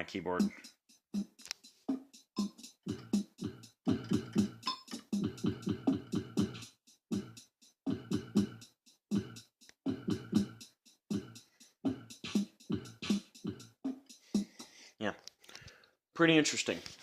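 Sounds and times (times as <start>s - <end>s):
drum machine beats: 0.0s - 14.8s
electronic keyboard choppy notes: 2.4s - 13.9s.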